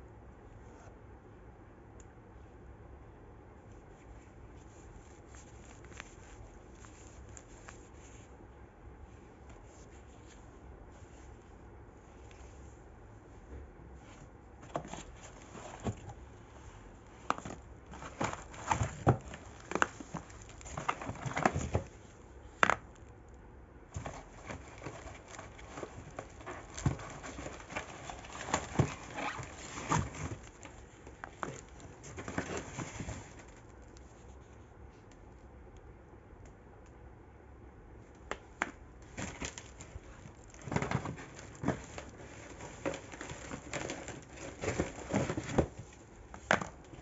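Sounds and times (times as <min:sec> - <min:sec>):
plastic packaging crinkling: 0:17.2 - 0:22.0, 0:24.0 - 0:34.0, 0:39.1 - 0:46.8.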